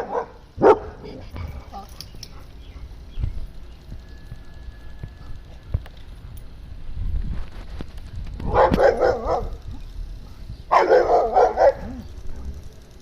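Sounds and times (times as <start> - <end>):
dog barking: 0.0 - 1.2, 8.5 - 9.6, 10.7 - 12.6.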